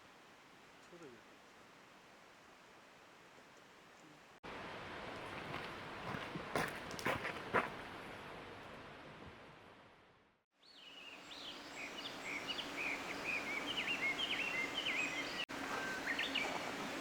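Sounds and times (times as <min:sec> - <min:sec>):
small birds chirping: 0:10.6 - 0:17.0
river flowing: 0:10.8 - 0:17.0.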